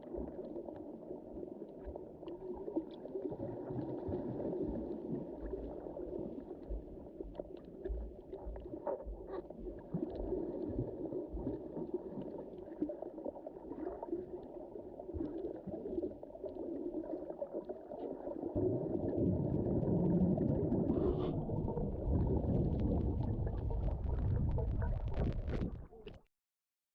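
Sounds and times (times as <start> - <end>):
deep rumble of water: 0.0 - 26.2
muffled underwater water wash: 0.0 - 26.2
small underwater clicks: 15.2 - 26.2.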